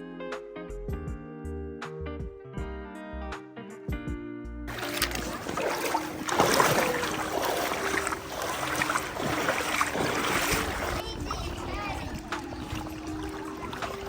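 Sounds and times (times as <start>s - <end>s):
boat motor hum: 4.7s - 14.0s
water splashing and rushing: 4.7s - 14.0s.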